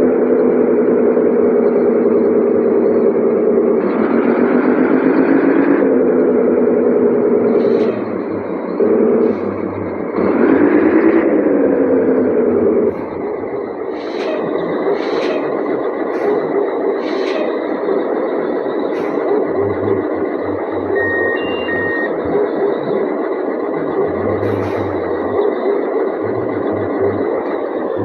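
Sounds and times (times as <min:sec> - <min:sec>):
truck running: 0:00.0 - 0:28.0
high whine: 0:12.3 - 0:28.0
short beeps: 0:20.6 - 0:22.2.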